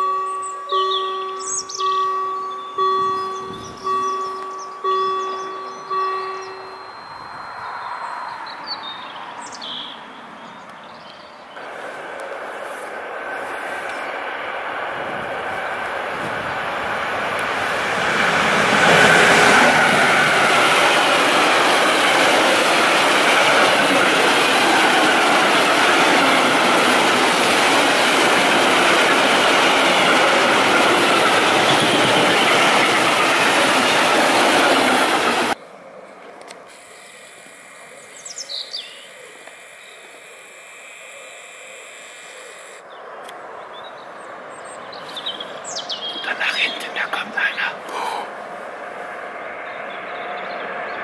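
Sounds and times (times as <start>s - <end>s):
freight train passing: 0.0s - 39.3s, 43.2s - 51.0s.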